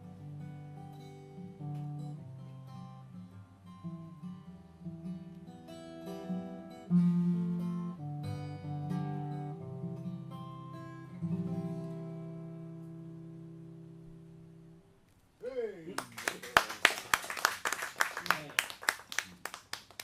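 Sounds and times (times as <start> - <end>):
acoustic guitar playing: 0.0 - 15.1.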